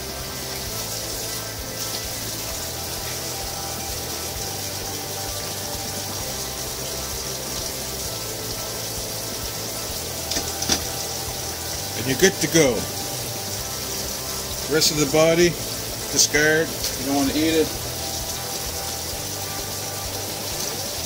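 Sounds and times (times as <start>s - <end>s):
tap water splashing in sink: 0.4s - 21.0s.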